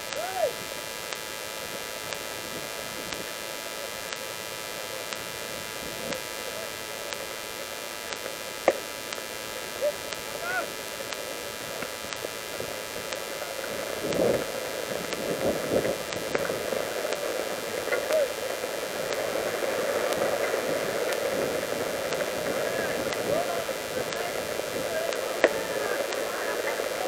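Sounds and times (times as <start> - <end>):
steady hiss: 0.0 - 27.0
distant shouting voices: 0.1 - 0.7, 9.6 - 11.8, 16.6 - 19.4, 20.3 - 27.0.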